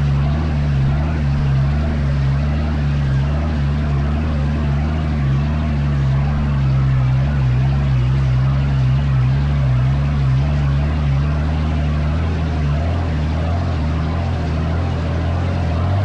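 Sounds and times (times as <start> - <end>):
dune buggy engine running: 0.0 - 16.0.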